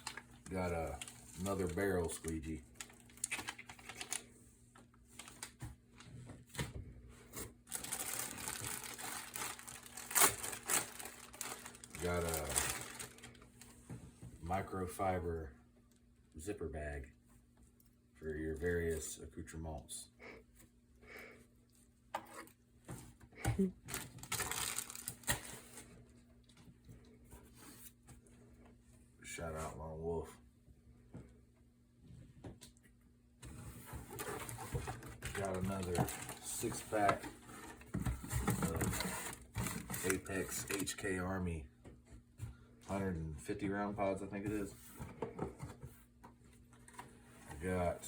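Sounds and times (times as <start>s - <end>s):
plastic packaging crinkling: 0.0s - 4.3s, 7.7s - 13.6s, 23.9s - 25.8s.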